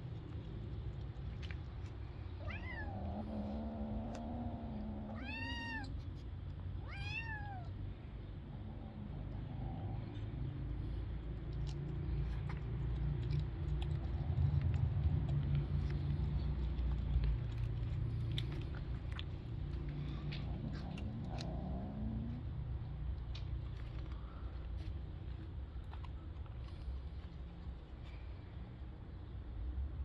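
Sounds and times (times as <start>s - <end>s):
steady low rumble: 0.0s - 30.0s
kitten meowing: 2.4s - 3.0s, 5.1s - 5.9s, 6.8s - 7.8s.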